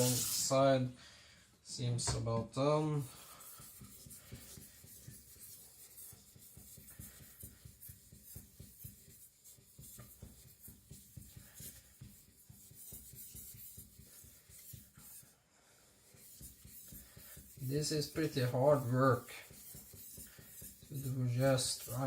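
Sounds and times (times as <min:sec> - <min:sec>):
blade scraping on whetstone: 0:00.0 - 0:00.5.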